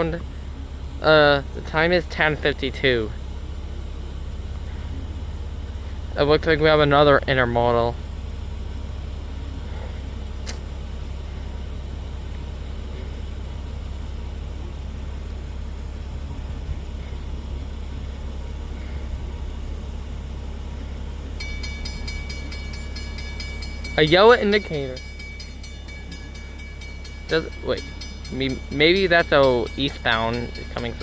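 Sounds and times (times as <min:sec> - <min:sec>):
freight train rumble: 0:00.0 - 0:31.0
high ringing tone: 0:21.2 - 0:31.0.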